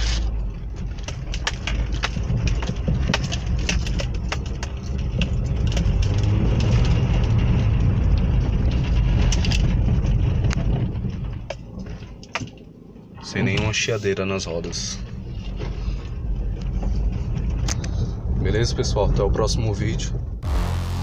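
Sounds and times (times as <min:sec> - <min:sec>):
car and tyres rumbling on road: 0:00.0 - 0:21.0
small clicks and knocks: 0:00.2 - 0:12.7.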